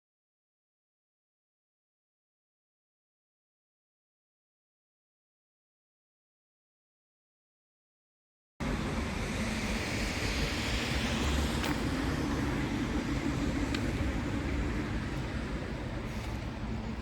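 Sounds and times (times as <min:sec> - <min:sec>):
road traffic rumble: 0:08.6 - 0:17.0
vehicles hissing past: 0:08.6 - 0:17.0.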